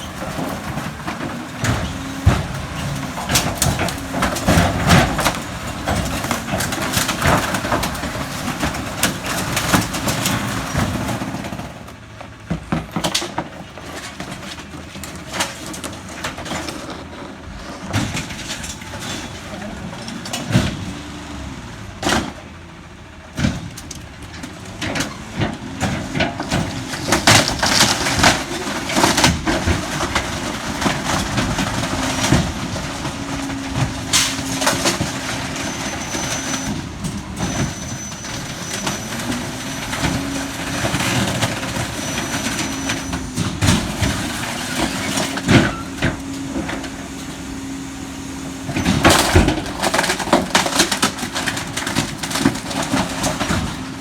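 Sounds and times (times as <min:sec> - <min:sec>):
truck engine revving: 0:00.0 - 0:11.8, 0:17.0 - 0:54.0
garbage truck crushing waste: 0:00.0 - 0:54.0.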